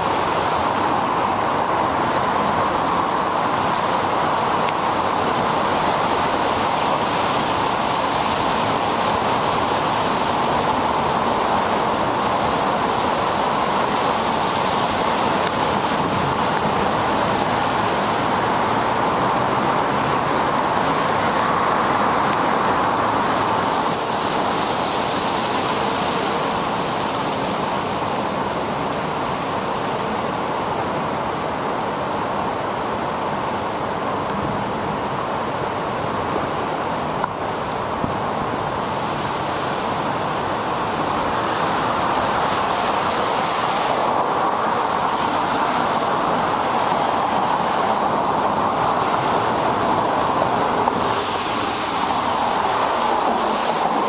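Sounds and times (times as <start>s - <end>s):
bicycle tyre hiss on wet road: 0.0s - 54.0s
passing road traffic: 0.0s - 54.0s.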